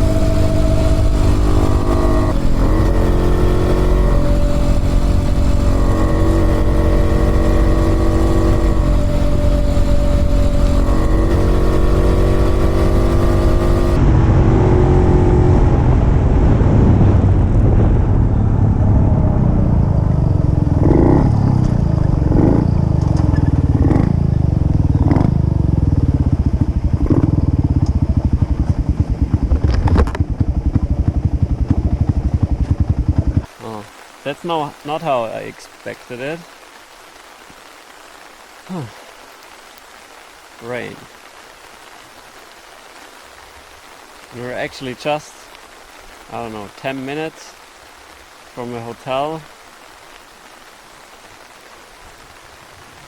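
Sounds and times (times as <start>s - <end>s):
two-stroke motorcycle engine revving: 0.0s - 15.6s, 20.0s - 33.5s.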